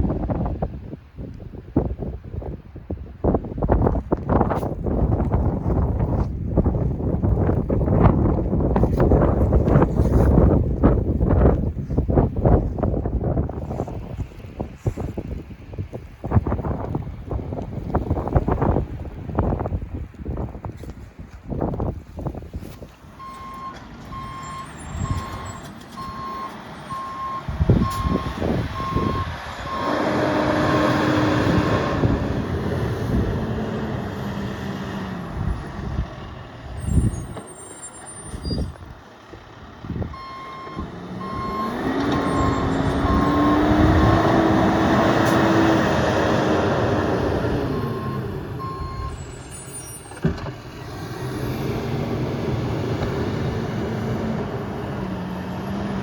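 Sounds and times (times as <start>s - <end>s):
truck engine revving: 23.0s - 56.0s
truck reversing alarm beeping: 23.2s - 32.2s, 40.0s - 45.0s, 47.1s - 50.3s.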